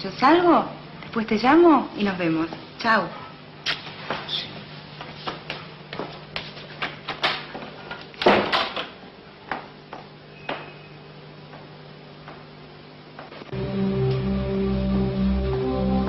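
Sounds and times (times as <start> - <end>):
steady low hum: 9.0 - 16.0.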